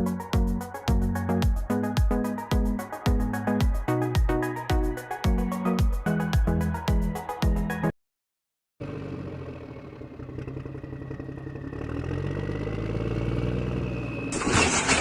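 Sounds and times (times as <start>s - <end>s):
vehicle engine rising in pitch: 8.8s - 15.0s.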